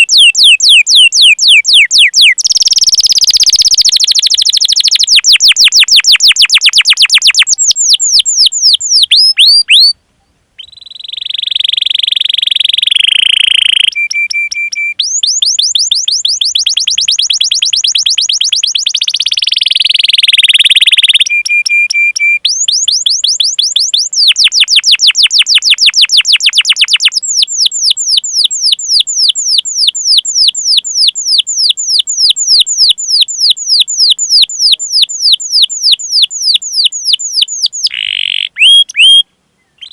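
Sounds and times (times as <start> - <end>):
canary singing: 0.0 - 10.0, 10.6 - 39.9.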